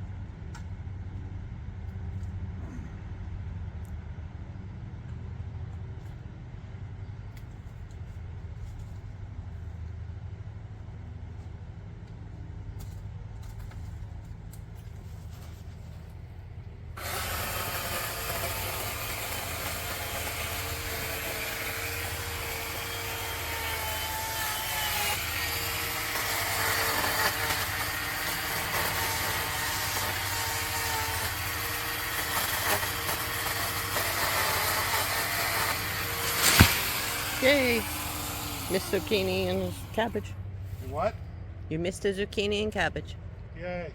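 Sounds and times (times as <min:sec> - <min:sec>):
low engine hum: 0:00.0 - 0:17.0, 0:35.8 - 0:43.6
chainsaw cutting tree limb: 0:17.0 - 0:40.3.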